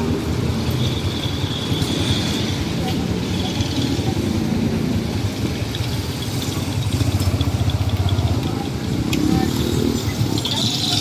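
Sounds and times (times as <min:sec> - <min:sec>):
vehicle engine idling: 0:04.1 - 0:11.0.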